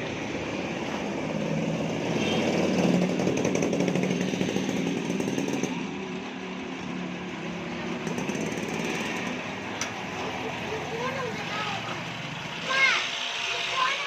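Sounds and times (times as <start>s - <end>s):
small motor running: 12.6s - 14.0s.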